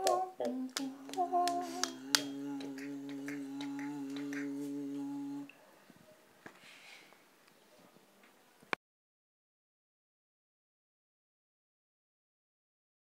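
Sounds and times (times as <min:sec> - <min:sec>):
person singing a long note: 0:00.0 - 0:05.5.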